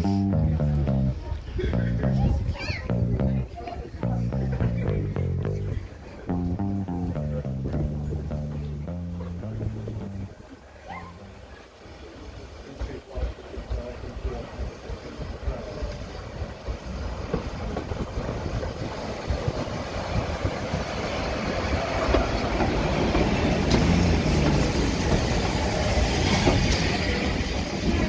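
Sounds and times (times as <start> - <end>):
train wheels clattering on rails: 12.8 - 28.0.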